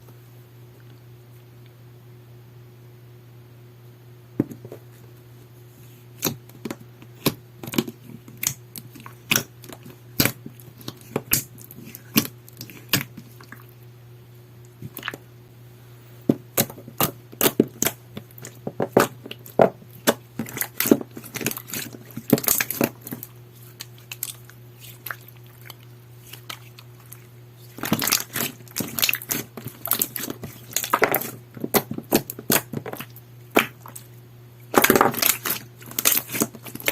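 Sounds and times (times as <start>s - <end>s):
slime squished by hand: 6.2s - 13.8s, 16.4s - 34.1s, 34.7s - 36.9s.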